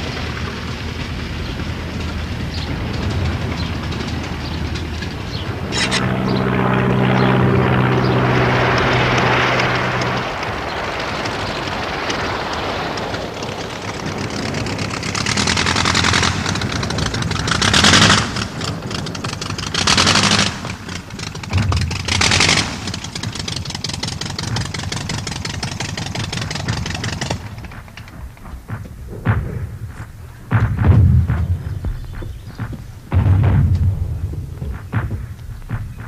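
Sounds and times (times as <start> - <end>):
machine-gun fire: 8.4 - 36.0.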